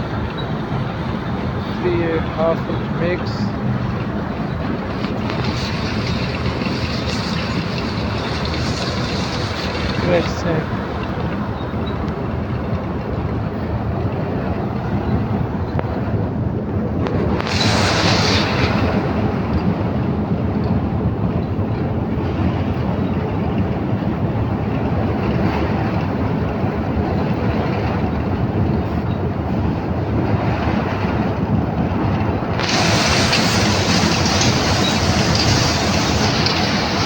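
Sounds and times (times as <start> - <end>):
heavy machinery rumbling: 0.0 - 37.0
bright hiss: 4.9 - 10.7, 17.4 - 19.0, 32.6 - 37.0.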